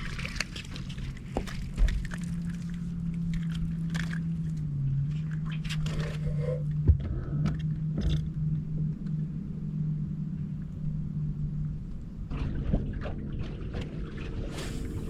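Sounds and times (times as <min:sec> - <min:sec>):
gear clicking and scraping: 0:00.0 - 0:08.3
boat motor humming: 0:00.0 - 0:15.0.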